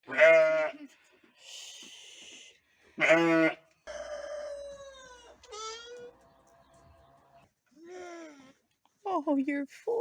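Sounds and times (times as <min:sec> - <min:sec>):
sheep bleating: 0:00.1 - 0:00.8, 0:03.0 - 0:03.6.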